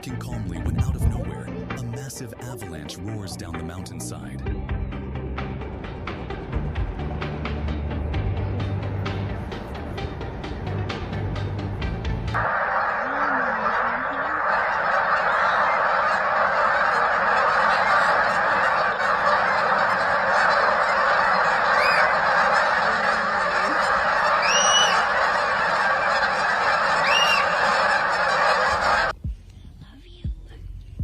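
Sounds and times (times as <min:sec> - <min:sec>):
din of many calls: 0:12.4 - 0:29.1
higher calls: 0:12.4 - 0:29.1.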